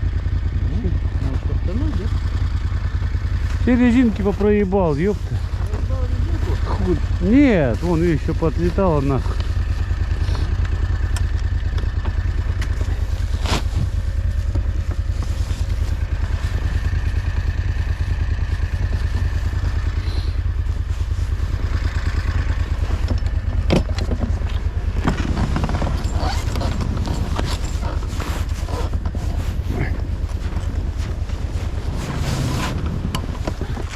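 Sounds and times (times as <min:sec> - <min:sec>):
snowmobile engine running: 0:00.0 - 0:33.9.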